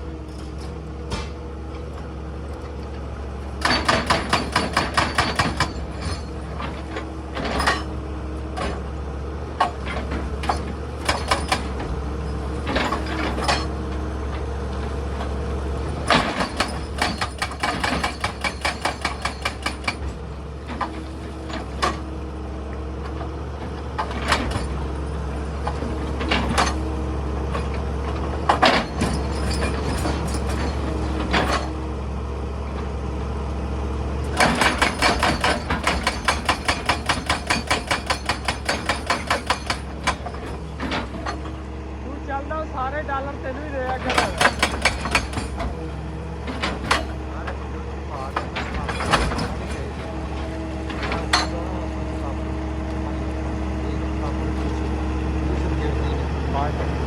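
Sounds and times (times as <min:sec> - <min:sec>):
excavator engine running: 0:00.0 - 0:57.0
machine knocking on rock: 0:03.6 - 0:05.8, 0:16.1 - 0:20.1, 0:34.4 - 0:40.3, 0:43.9 - 0:45.8.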